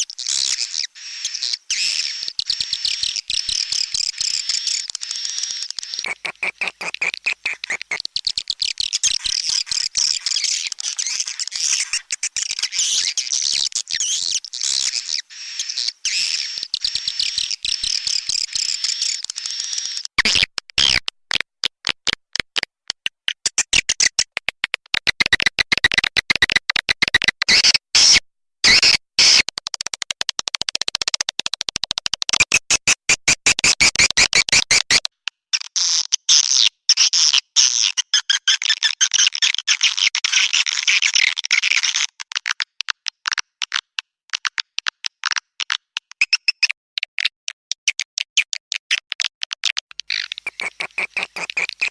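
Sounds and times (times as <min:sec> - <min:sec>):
swiftlet chirps twittering: 0:00.2 - 0:20.1.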